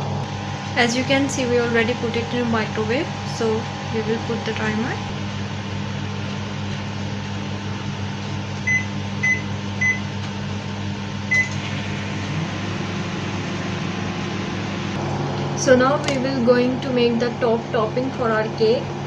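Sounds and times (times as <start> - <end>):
microwave oven running hum: 0.0 - 19.0
steady low hum: 0.0 - 19.0
microwave keypad beeping: 8.6 - 10.1, 11.3 - 11.6.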